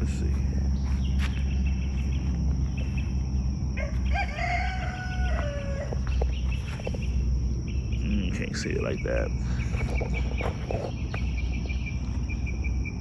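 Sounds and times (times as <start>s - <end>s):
rooster crowing: 3.7s - 6.3s.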